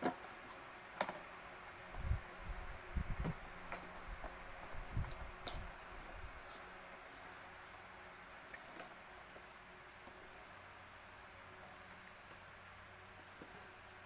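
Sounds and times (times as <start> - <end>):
faint steady hiss: 0.0 - 14.0
fan parts bumping and clicking: 1.9 - 6.5.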